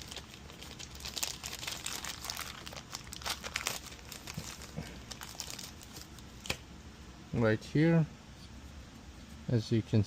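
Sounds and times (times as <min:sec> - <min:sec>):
crinkling rustles: 0:00.0 - 0:06.6.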